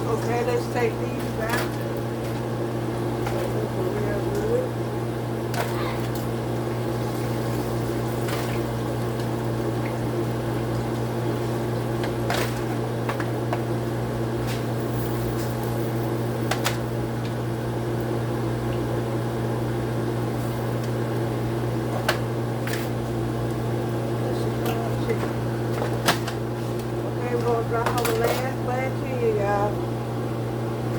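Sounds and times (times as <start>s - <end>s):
low electrical hum: 0.0s - 30.9s
chicken sizzling in hot oil: 6.7s - 12.0s
utensils clinking against pot: 27.8s - 28.6s.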